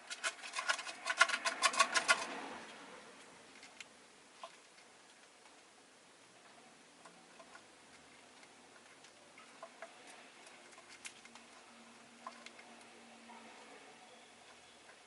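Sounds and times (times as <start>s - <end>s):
birds clicking and pecking: 0.0s - 5.6s, 6.4s - 15.0s.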